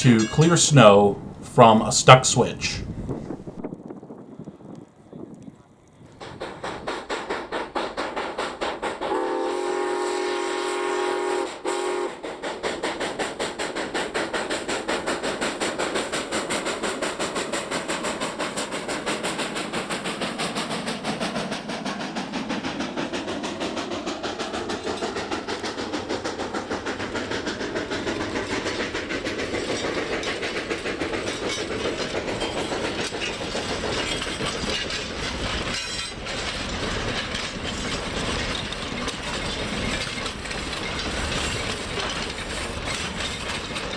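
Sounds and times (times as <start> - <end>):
steam locomotive exhaust beats: 0.0 - 4.6, 6.0 - 43.9
wheels clattering on rail: 0.0 - 5.3, 6.0 - 9.3, 12.2 - 43.9
steam whistle: 9.0 - 12.2.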